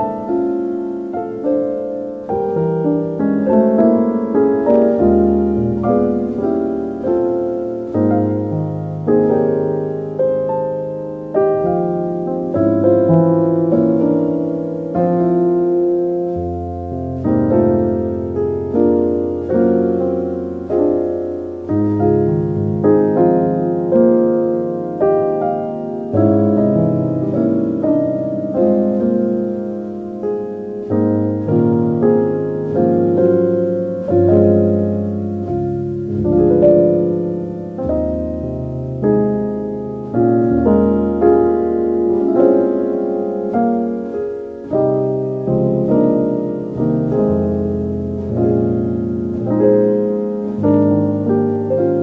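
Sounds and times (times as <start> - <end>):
soft slow piano chords: 0.0 - 52.0.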